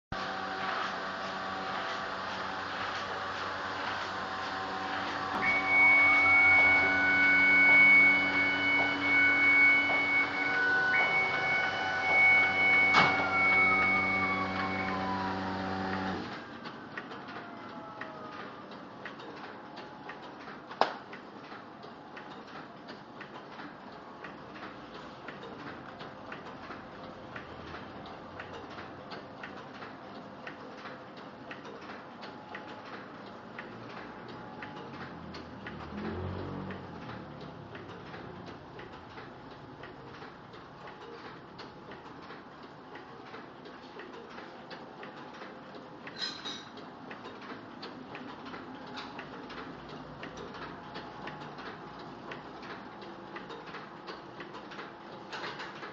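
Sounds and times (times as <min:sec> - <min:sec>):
printing press low hum: 0:00.1 - 0:55.9
rising machine tone: 0:04.3 - 0:16.3
high whine: 0:04.8 - 0:16.2.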